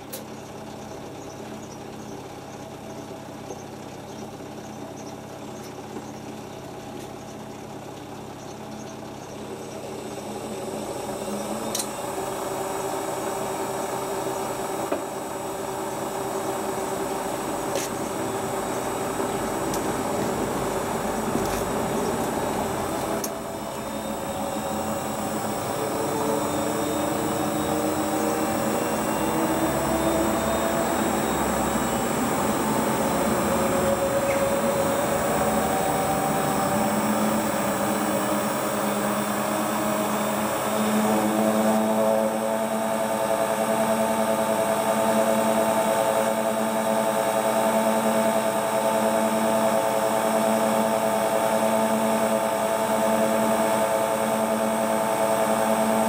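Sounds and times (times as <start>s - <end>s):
washing machine motor whine: 0.0s - 56.0s.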